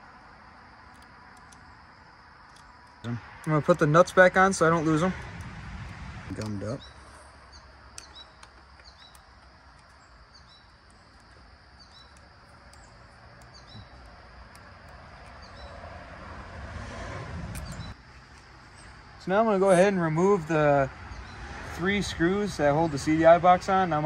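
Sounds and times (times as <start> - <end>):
faint outdoor background noise: 0.0 - 24.0
small bird chirping: 6.3 - 15.9, 17.5 - 19.0.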